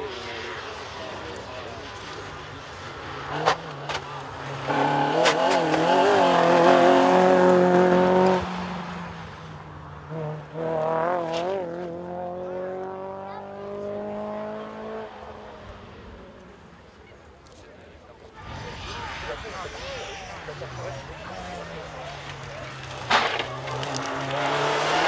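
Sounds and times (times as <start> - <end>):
rally car engine: 0.0 - 17.6, 18.2 - 25.0
sharp crack: 18.4 - 25.0.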